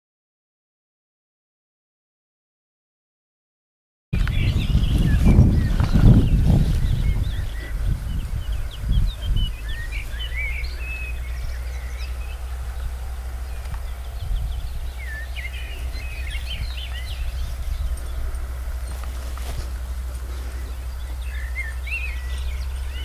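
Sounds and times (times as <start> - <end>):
small birds chirping: 4.2 - 23.0
steady low rumble: 4.2 - 23.0.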